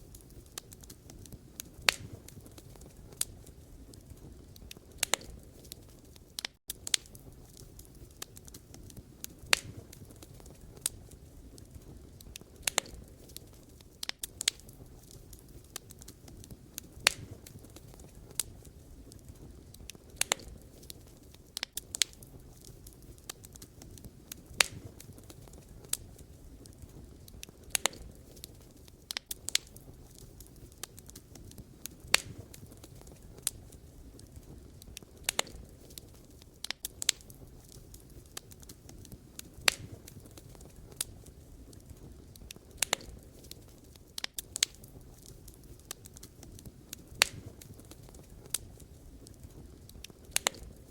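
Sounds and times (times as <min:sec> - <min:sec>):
low rumble of flames: 0:00.0 - 0:50.9
wood fire crackling: 0:00.0 - 0:50.9.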